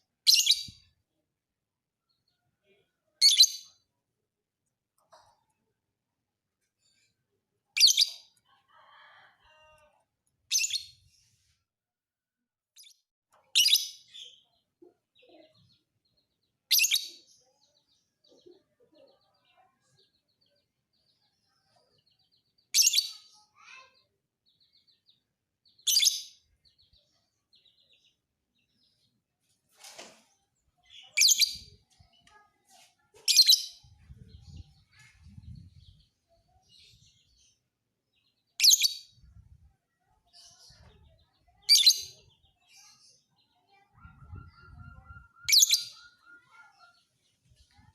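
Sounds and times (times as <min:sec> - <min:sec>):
soft bird chatter: 0:00.0 - 0:11.8, 0:12.8 - 0:47.9
lovebird shrill chirps: 0:44.0 - 0:46.8.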